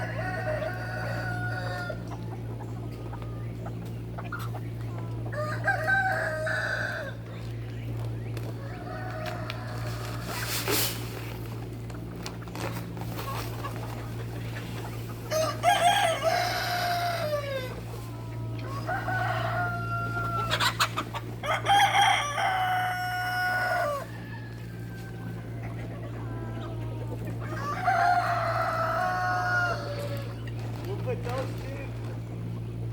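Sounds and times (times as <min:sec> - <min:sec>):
rooster crowing: 0:00.0 - 0:02.0, 0:05.3 - 0:07.2, 0:15.3 - 0:17.8, 0:18.6 - 0:20.8, 0:21.4 - 0:25.7, 0:27.4 - 0:30.4
steady low hum: 0:00.0 - 0:32.9.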